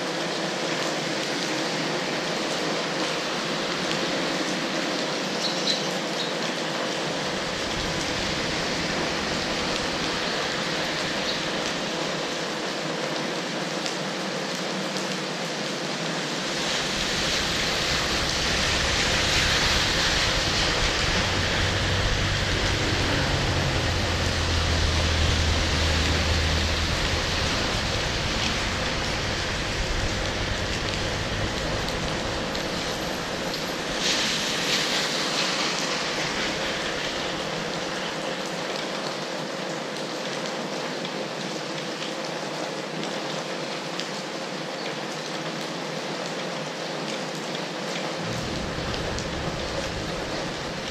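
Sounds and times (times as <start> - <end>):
steady rain: 0.0 - 50.9
low rumble: 7.3 - 11.8, 16.5 - 34.4, 48.2 - 50.9.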